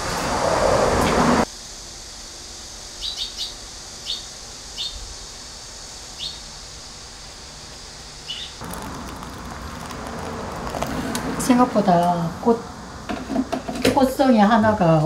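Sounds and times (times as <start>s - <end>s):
birds chirping: 6.2s - 6.5s, 8.2s - 9.3s
water pouring into ceramic bowl: 8.6s - 11.4s.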